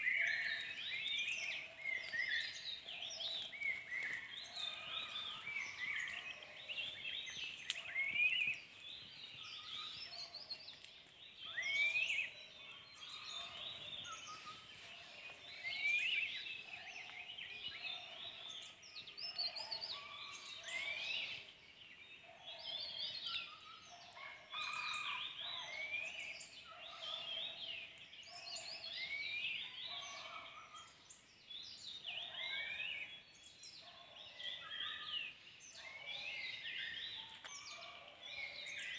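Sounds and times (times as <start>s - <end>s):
birds chirping and whistling: 0.0s - 10.8s.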